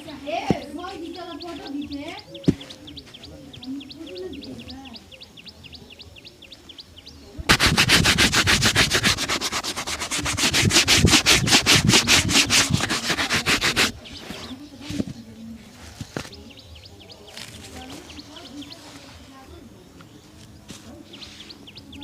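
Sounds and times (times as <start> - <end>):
shoe buffing rubbing strokes: 7.5 - 14.6.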